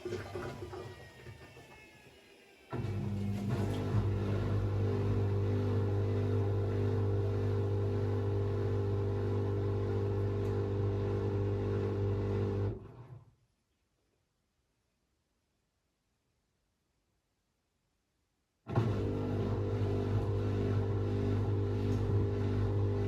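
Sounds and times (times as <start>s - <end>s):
washing machine humming: 2.7s - 13.0s, 18.7s - 23.0s.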